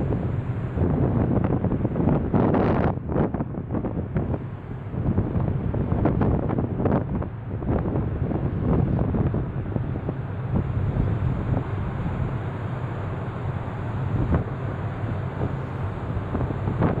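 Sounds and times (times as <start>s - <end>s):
ferry engines droning: 0.0s - 17.0s
wind buffeting microphone: 0.0s - 17.0s.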